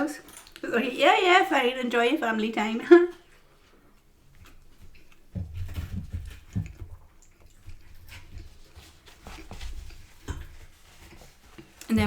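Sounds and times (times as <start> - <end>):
person chewing food: 4.3 - 5.3, 6.1 - 11.9.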